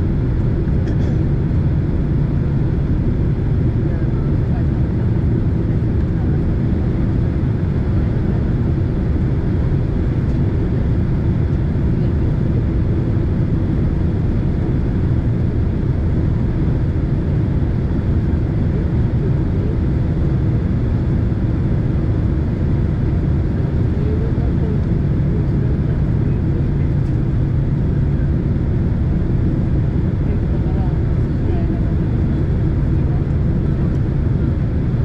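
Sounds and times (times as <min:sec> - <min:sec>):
airplane cabin engine rumble: 0:00.0 - 0:35.0.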